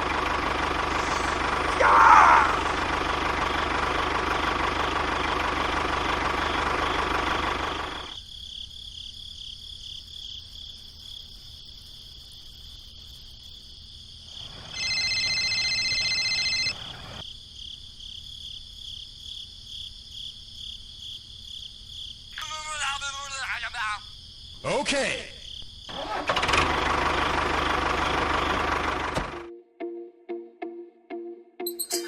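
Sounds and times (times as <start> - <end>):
tractor engine running: 0.0 - 8.2, 14.4 - 17.2, 25.9 - 29.5
crickets chirping: 0.8 - 5.8, 6.4 - 25.9
high-pitched tone: 29.5 - 32.0.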